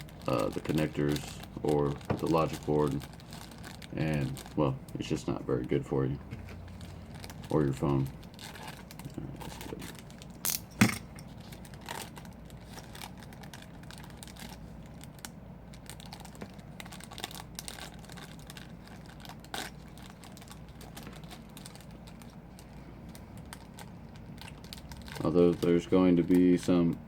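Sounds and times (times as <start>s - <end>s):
crinkling: 0.0s - 27.0s.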